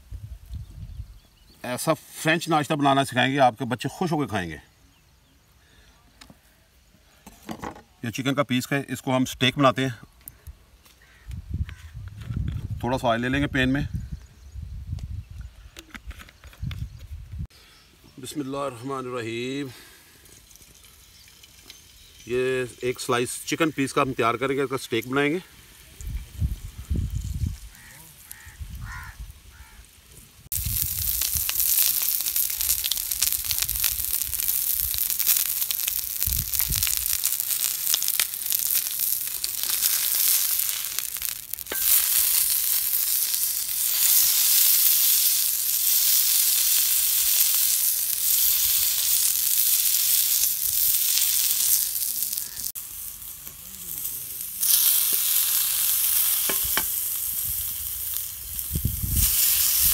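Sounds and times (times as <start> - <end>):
chicken sizzling in oil: 30.4 - 59.9.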